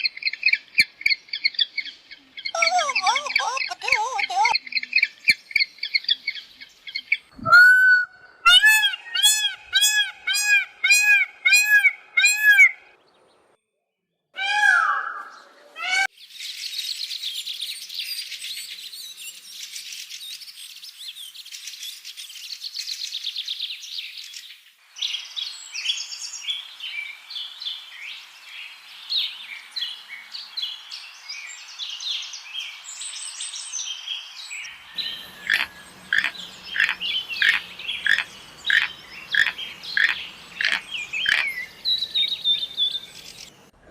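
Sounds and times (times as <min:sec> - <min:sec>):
many birds chirping: 0:00.0 - 0:07.4, 0:15.2 - 0:43.9
loud arching bird calls: 0:00.0 - 0:13.0, 0:14.4 - 0:16.1, 0:34.6 - 0:43.7.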